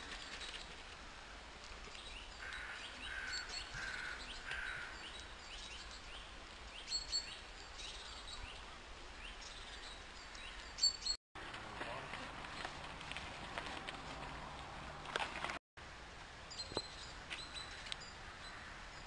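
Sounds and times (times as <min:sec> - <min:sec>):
birds chirping: 0:01.9 - 0:11.2.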